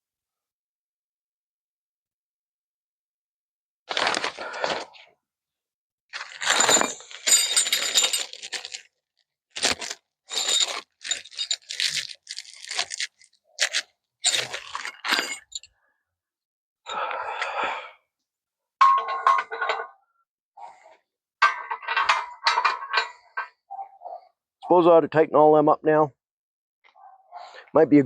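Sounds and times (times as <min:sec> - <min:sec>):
metal tools scraping and clinking: 0:06.2 - 0:08.8, 0:09.6 - 0:15.7, 0:18.8 - 0:19.9, 0:21.4 - 0:24.2.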